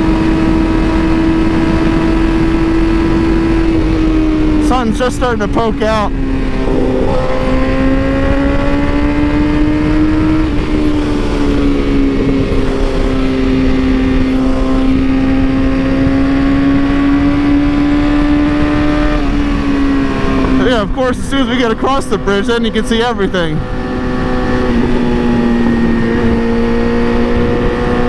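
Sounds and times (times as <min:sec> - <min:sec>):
motorcycle engine cruising: 0:00.0 - 0:28.0
low rushing noise: 0:03.7 - 0:17.2.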